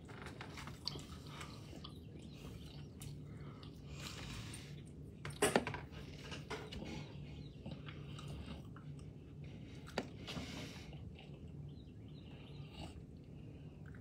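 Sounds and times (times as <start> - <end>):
chewing: 0.3 - 5.0, 6.6 - 11.6.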